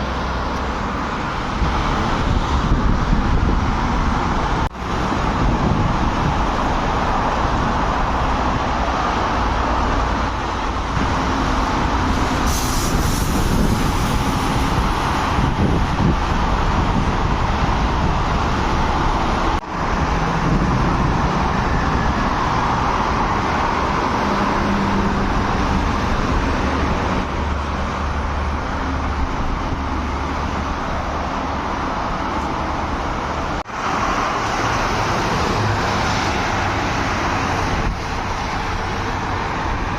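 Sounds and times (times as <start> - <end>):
heavy road traffic: 0.0 - 39.9
brief hiss: 12.4 - 13.6.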